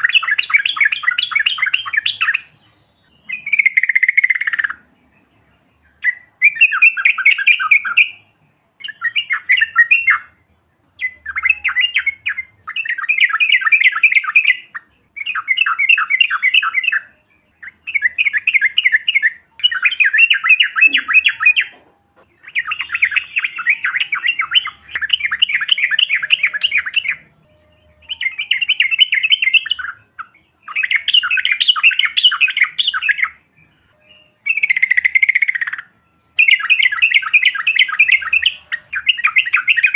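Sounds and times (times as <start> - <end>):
bulbul singing chattering phrases: 11.0 - 39.9.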